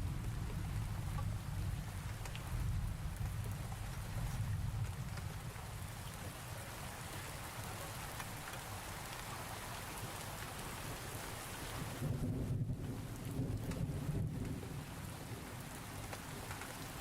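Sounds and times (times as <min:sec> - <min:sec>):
steady rain falling: 0:00.0 - 0:17.0
low thunder rumble: 0:12.0 - 0:16.1.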